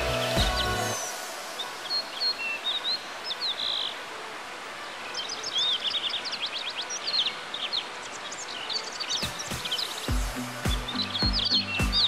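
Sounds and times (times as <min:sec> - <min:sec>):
steady hiss: 0:00.0 - 0:12.0
birds chirping and whistling: 0:05.0 - 0:12.0.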